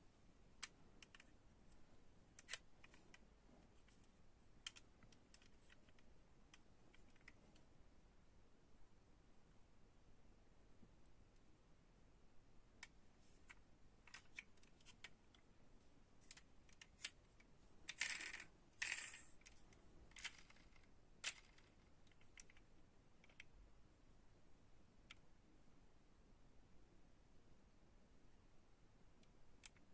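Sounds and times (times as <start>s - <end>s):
model cars clicking and tapping: 16.2s - 23.5s, 29.2s - 29.9s.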